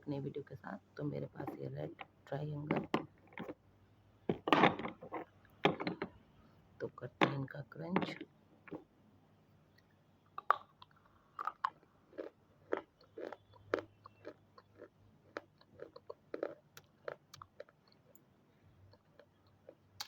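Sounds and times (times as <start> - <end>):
chewing with sharp crunches: 10.4 - 18.2, 18.8 - 20.0.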